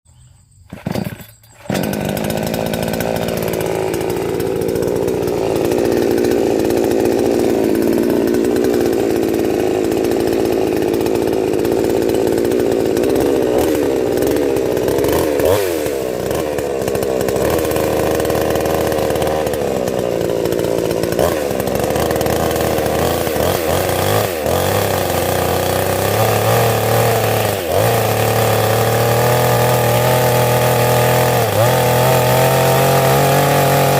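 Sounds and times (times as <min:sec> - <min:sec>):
chainsaw running at high speed: 0:00.7 - 0:33.9.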